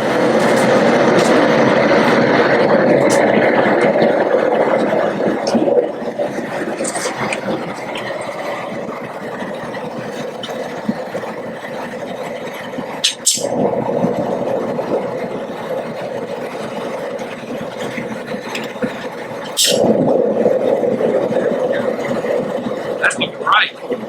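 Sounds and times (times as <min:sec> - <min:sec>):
gas burner roaring: 0:00.0 - 0:24.0
water at rolling boil: 0:00.0 - 0:24.0.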